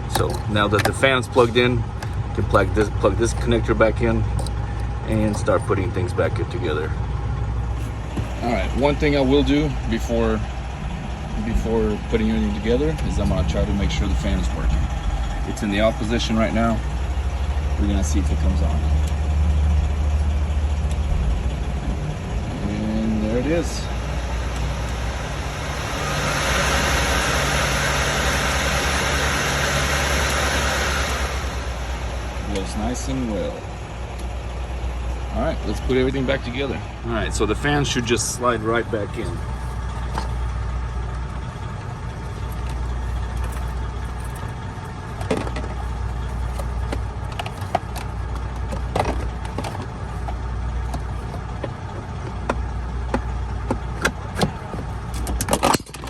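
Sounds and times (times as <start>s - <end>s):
steady low hum: 0.0s - 56.0s
blower fan rushing air: 21.1s - 52.3s.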